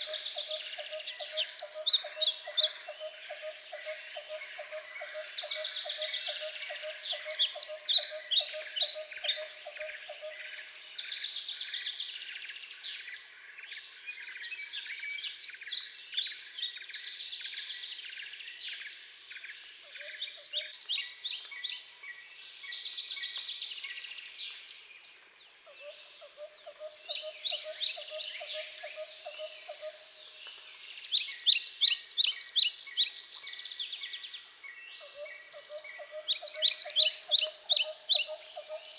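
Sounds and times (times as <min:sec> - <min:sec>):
small birds chirping: 0:30.5 - 0:38.9.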